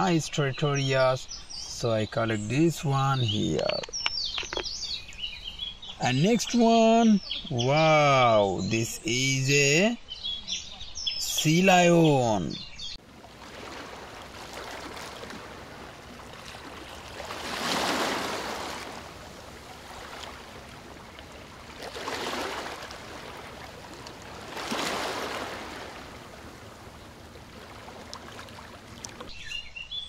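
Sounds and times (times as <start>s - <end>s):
water rushing: 11.4s - 29.3s.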